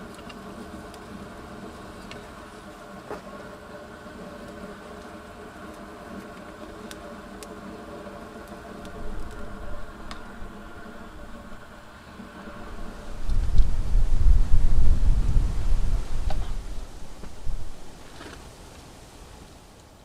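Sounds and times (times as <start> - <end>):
low mechanical hum: 0.0 - 20.0
low rumble: 8.7 - 18.0.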